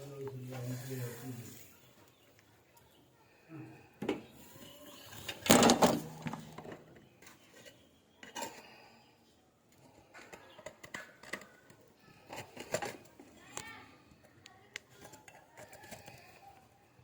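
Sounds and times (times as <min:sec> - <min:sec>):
metal pots clattering: 0:04.8 - 0:08.8.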